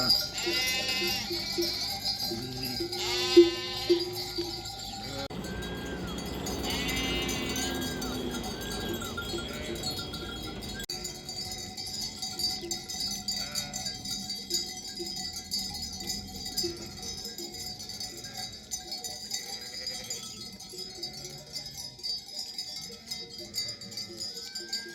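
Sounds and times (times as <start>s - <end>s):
sheep bleating: 0.0s - 10.3s, 13.3s - 14.0s
sheep bells clanking: 0.0s - 24.9s.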